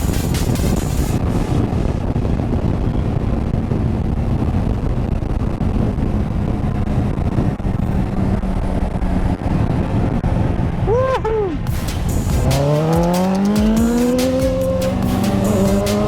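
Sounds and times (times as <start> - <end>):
wind rushing over microphone: 0.0 - 16.0
motorcycle engine running: 11.6 - 16.0.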